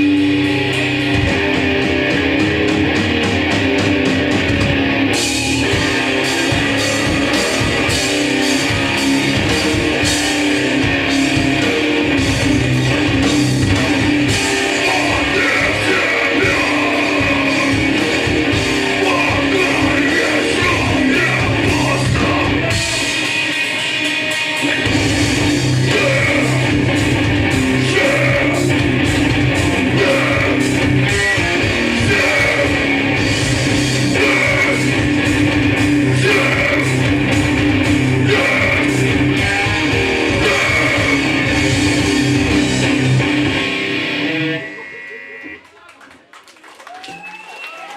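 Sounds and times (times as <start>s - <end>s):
drum kit: 0.0s - 44.0s
bass guitar: 0.0s - 44.8s
distorted electric guitar: 0.0s - 45.7s
vocals: 5.2s - 43.3s.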